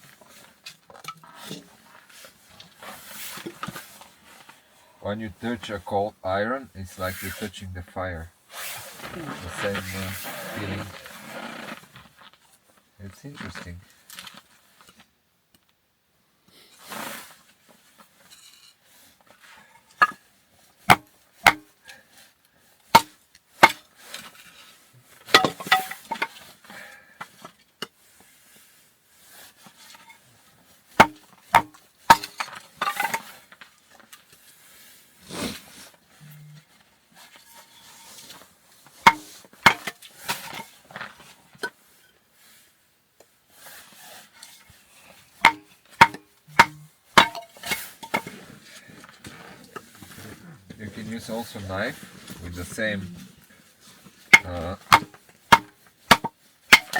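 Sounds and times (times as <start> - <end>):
blade chopping wood: 20.9 - 21.7, 23.0 - 23.8, 31.0 - 33.2, 39.1 - 40.5, 45.4 - 48.3, 54.3 - 56.9.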